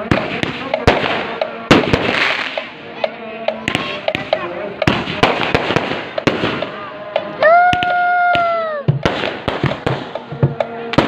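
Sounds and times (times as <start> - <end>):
fireworks bangs and pops: 0.0 - 2.8, 3.6 - 11.0.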